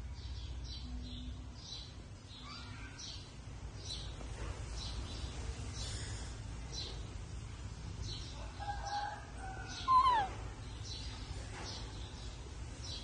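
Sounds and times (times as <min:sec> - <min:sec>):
birds chirping: 0:08.0 - 0:13.0.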